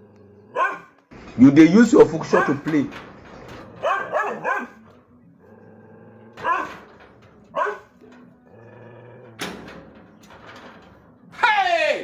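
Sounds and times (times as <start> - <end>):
dog barking: 0.5 - 1.0, 3.8 - 4.8, 6.4 - 6.8, 7.5 - 7.9.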